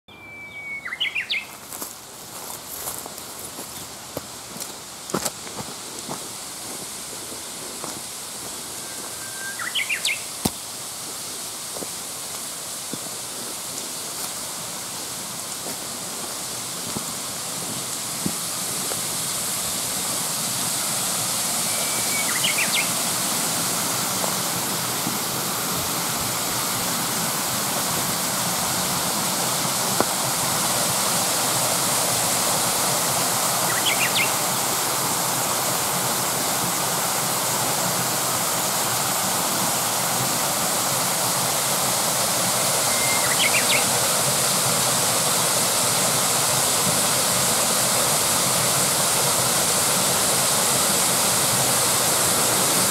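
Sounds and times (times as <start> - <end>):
mountain stream rushing: 0.8 - 52.9
high chirps: 8.7 - 10.4, 21.5 - 23.2, 42.8 - 43.9.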